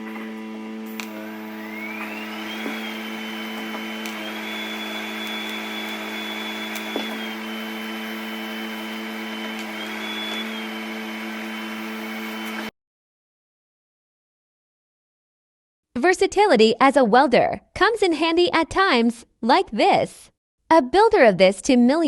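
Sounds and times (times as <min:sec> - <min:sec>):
welding arc buzzing and whining: 0:00.0 - 0:12.7.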